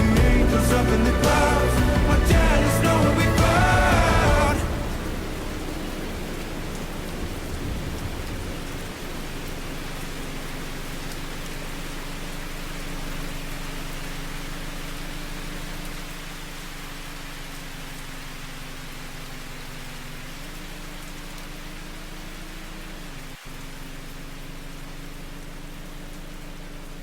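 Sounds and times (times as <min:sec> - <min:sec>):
low rumble: 0:00.0 - 0:11.7
steady low hum: 0:00.0 - 0:18.5
heavy rain on car roof: 0:00.0 - 0:27.0.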